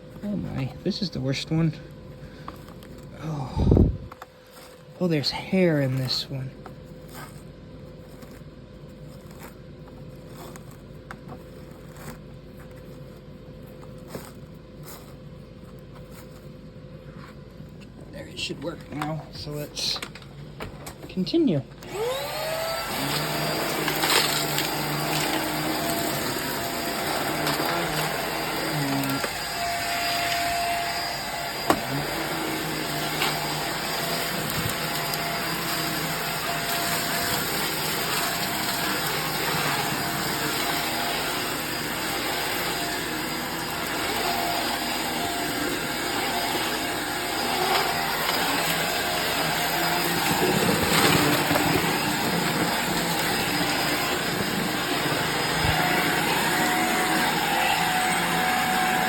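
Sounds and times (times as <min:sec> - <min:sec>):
vacuum cleaner motor whine: 0:00.0 - 0:07.4, 0:17.2 - 0:59.0.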